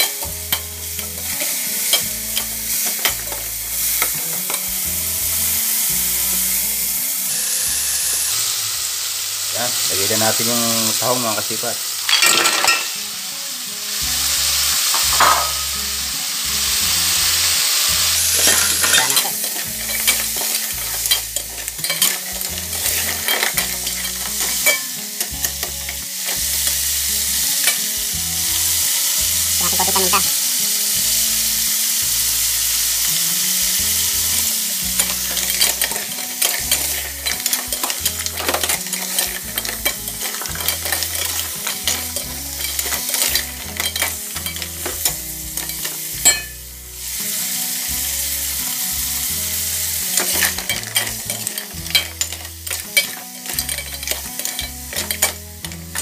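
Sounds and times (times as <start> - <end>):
frying hiss in a pot: 0.0 - 56.0
shells and ladle knocking pot: 14.9 - 15.7.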